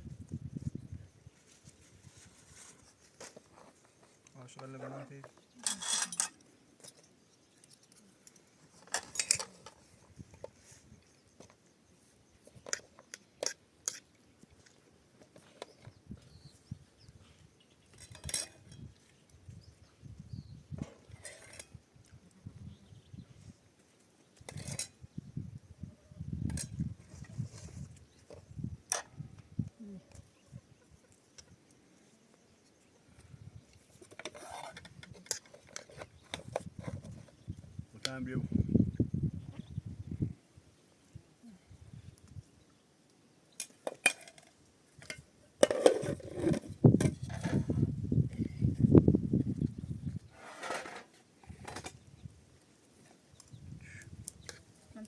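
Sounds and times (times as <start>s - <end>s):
scraping rustle: 1.3s - 6.4s, 26.6s - 28.4s, 33.9s - 37.5s, 50.1s - 52.0s
metal spoon clinking on dishes: 5.6s - 6.4s.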